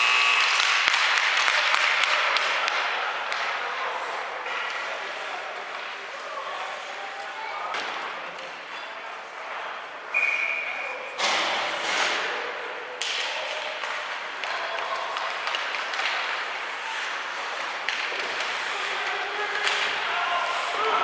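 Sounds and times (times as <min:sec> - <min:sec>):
hockey sticks and puck knocking: 0:00.4 - 0:03.6, 0:13.0 - 0:20.1
crowd voices humming: 0:16.5 - 0:21.0.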